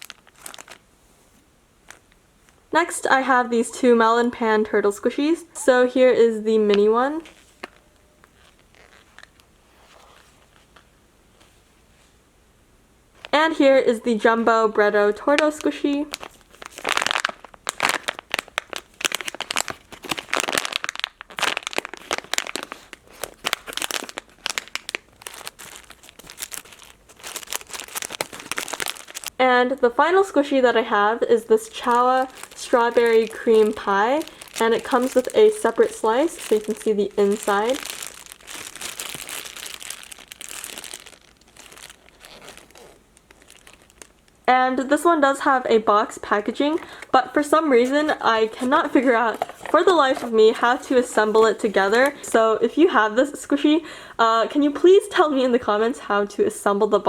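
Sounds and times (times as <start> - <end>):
packaging crinkling: 0.0 - 0.8, 1.8 - 2.2, 6.7 - 10.9, 15.3 - 29.4, 31.3 - 44.5, 46.3 - 52.4.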